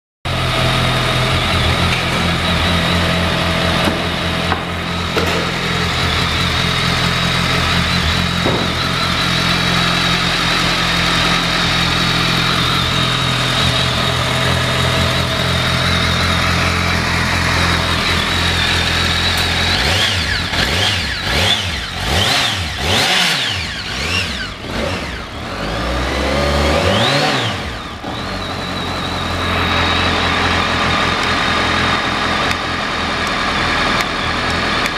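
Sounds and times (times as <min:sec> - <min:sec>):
motorcycle engine idling and revving: 0:00.3 - 0:34.9.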